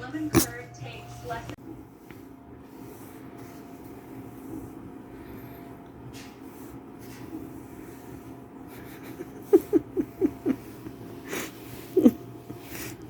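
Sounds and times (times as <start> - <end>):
pig breathy huff: 7.0 - 13.0.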